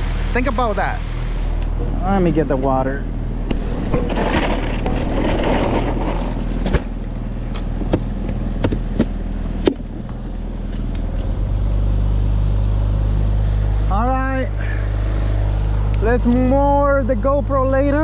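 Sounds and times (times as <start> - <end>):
outboard motor running: 0.0 - 18.0
knocks and clicks in boat: 6.6 - 10.9.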